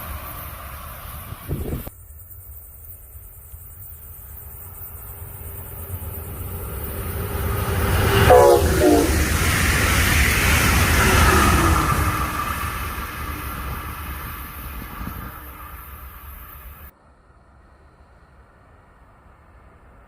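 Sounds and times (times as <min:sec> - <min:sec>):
train rumbling: 0:00.0 - 0:20.0
two-note train horn blast: 0:07.7 - 0:09.4.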